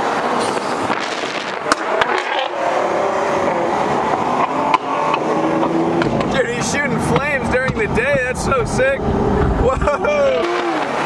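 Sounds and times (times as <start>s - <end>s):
wind noise: 0.0s - 2.4s, 3.1s - 11.0s
road noise: 0.0s - 11.0s
sharp crack: 0.4s - 2.5s.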